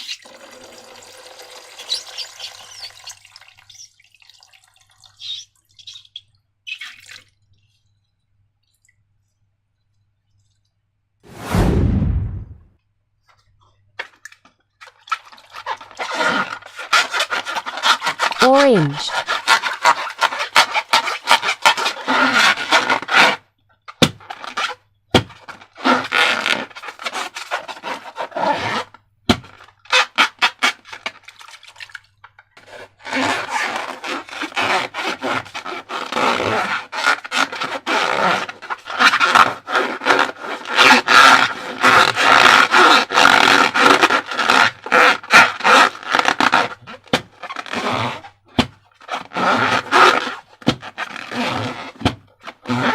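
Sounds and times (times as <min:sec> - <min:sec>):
rubber balloon squeaking: 0:01.7 - 0:03.9, 0:15.6 - 0:23.4, 0:24.0 - 0:30.8, 0:33.0 - 0:52.9.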